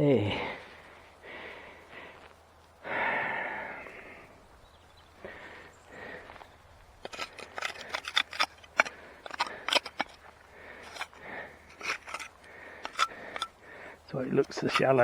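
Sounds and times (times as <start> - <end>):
tool digging in soil: 7.0 - 10.2, 10.8 - 13.6, 14.3 - 15.0.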